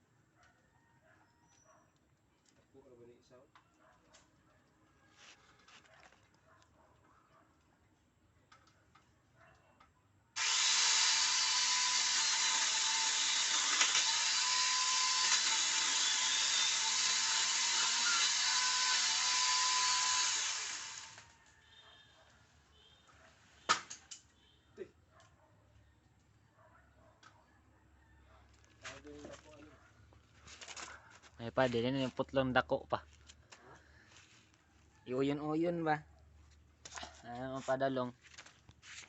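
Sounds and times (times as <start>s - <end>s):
electric chainsaw sawing wood: 10.4s - 21.4s
sharp crack: 23.7s - 24.2s.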